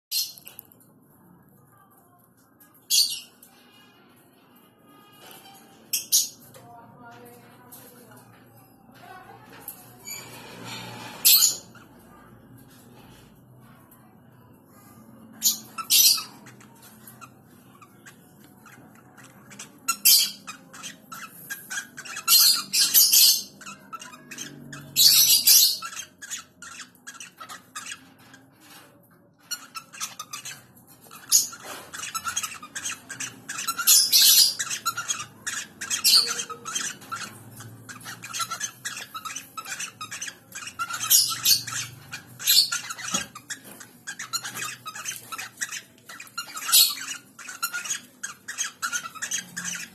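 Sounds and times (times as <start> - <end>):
birds squawking harshly: 9.0 - 13.4, 14.9 - 49.9.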